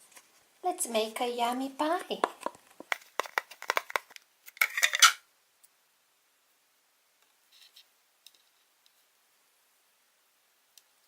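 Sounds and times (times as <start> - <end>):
plastic tools clicking and tapping: 2.2 - 5.2.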